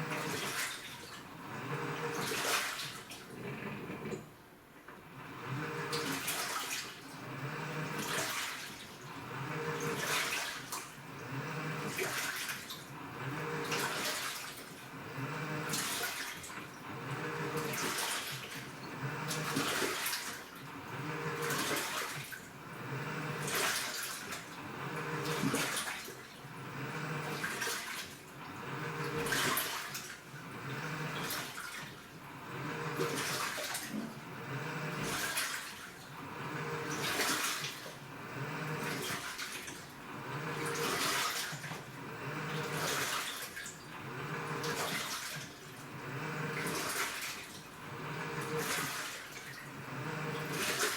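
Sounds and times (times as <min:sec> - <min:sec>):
low motor hum: 0:00.0 - 0:00.4, 0:01.4 - 0:02.2, 0:03.3 - 0:04.3, 0:05.0 - 0:06.2, 0:07.2 - 0:08.1, 0:09.1 - 0:10.1, 0:11.0 - 0:12.0, 0:12.9 - 0:14.0, 0:14.9 - 0:15.8, 0:16.8 - 0:17.8, 0:18.7 - 0:19.8, 0:20.6 - 0:21.8, 0:22.6 - 0:23.6, 0:24.6 - 0:25.7, 0:26.5 - 0:27.5, 0:28.4 - 0:29.6, 0:30.3 - 0:31.4, 0:32.2 - 0:35.3, 0:36.1 - 0:37.4, 0:38.0 - 0:39.2, 0:40.0 - 0:41.1, 0:41.7 - 0:43.0, 0:43.9 - 0:44.9, 0:45.7 - 0:47.0, 0:47.6 - 0:49.0, 0:49.7 - 0:50.9
water sloshing in washing machine: 0:00.0 - 0:50.9.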